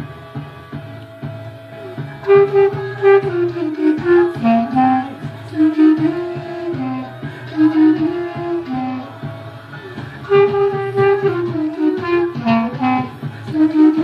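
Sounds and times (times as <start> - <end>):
backing track with bass beat: 0.0 - 14.0
clarinet melody: 2.2 - 9.2, 10.2 - 14.0.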